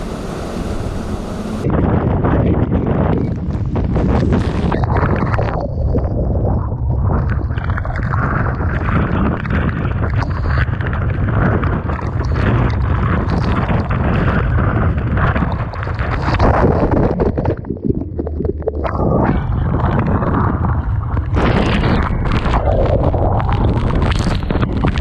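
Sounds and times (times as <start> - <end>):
waves breaking: 0.0 - 1.7
wind buffeting microphone: 0.0 - 17.9, 18.9 - 25.0.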